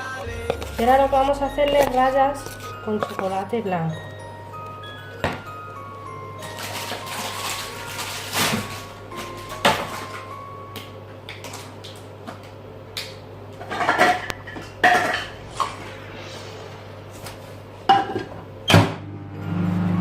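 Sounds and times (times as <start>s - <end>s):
utensils clinking against dishes: 1.7s - 4.2s, 6.4s - 10.3s, 13.6s - 15.3s.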